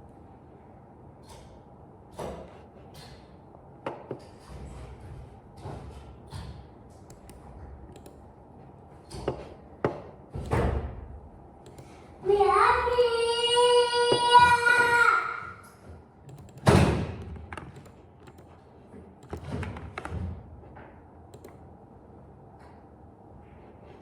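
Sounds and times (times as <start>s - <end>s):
sharp clicks: 11.6s - 12.0s, 16.3s - 18.5s, 21.3s - 21.6s.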